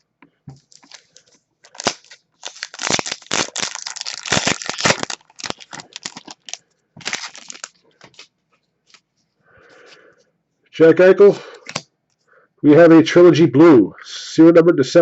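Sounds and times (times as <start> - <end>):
foil wrapper crinkling: 0.6 - 8.3.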